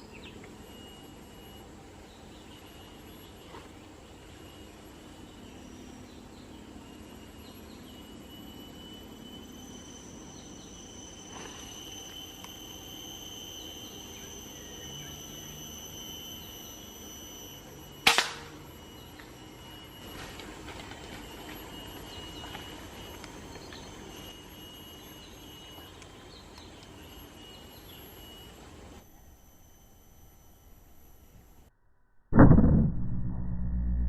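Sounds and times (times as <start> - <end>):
night insects chirring: 0.0 - 31.7
rifle gunshot: 18.1 - 18.5.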